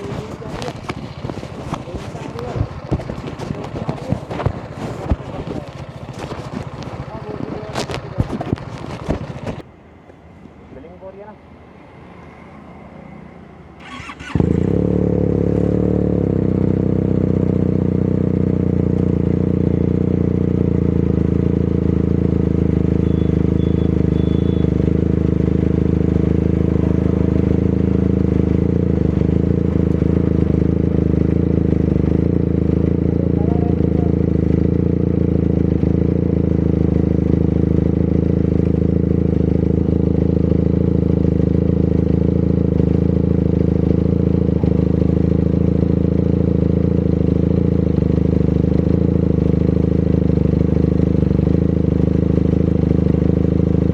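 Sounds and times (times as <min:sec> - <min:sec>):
motorcycle engine idling: 0:00.0 - 0:10.8, 0:13.8 - 0:53.9
motorcycle engine cranking: 0:13.8 - 0:15.1.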